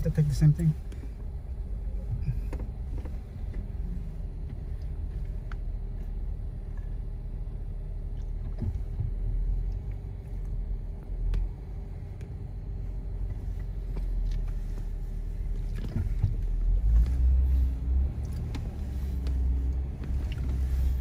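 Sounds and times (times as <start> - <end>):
car engine running low: 0.0 - 21.0.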